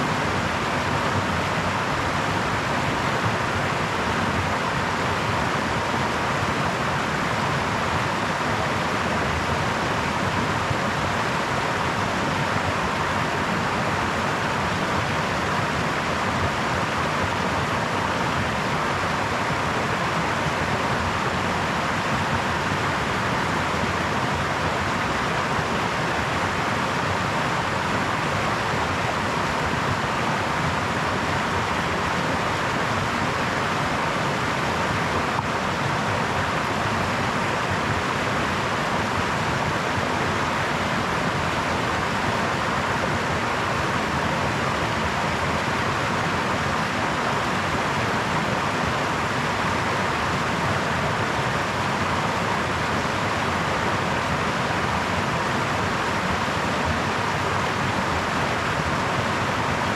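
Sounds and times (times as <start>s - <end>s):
brook flowing: 0.0s - 59.9s.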